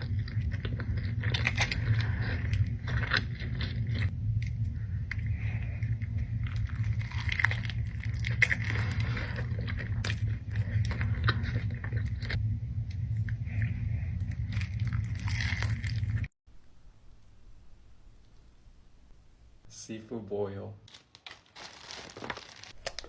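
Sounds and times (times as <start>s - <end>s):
wet crunchy chewing: 0.0s - 16.3s
steady low hum: 0.0s - 20.0s.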